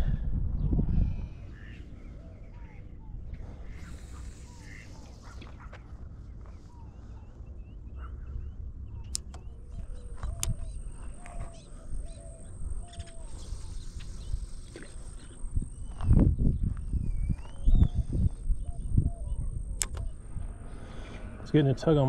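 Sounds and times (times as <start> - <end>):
birds chirping: 0.0 - 22.0
wind rumble on microphone: 0.0 - 22.0
thin high whine: 1.2 - 22.0
sharp clicks: 9.0 - 15.0, 19.3 - 20.6.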